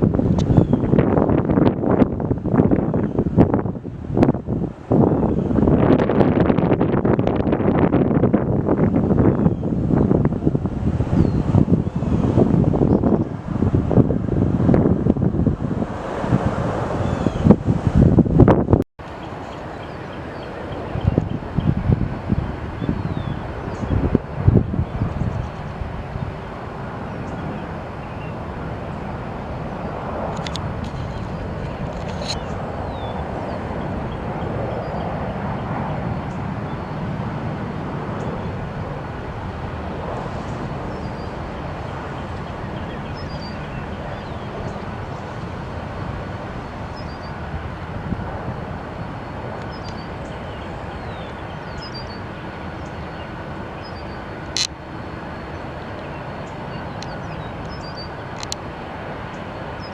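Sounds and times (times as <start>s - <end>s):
jet engines rushing: 0.0s - 59.9s
sharp click: 54.5s - 54.8s.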